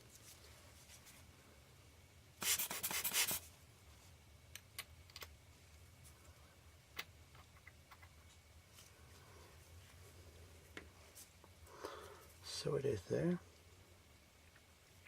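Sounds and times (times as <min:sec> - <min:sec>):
small parts clicking: 0:04.5 - 0:05.4.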